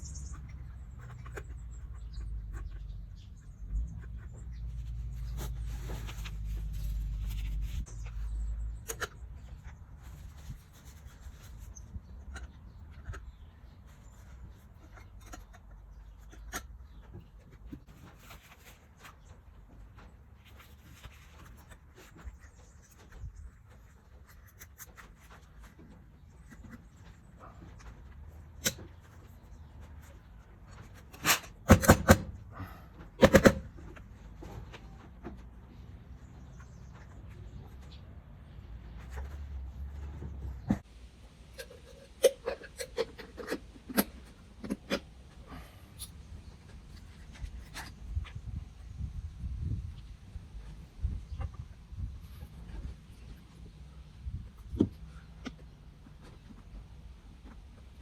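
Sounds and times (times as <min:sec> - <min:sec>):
rubbing and scraping by hand: 0:00.0 - 0:31.6.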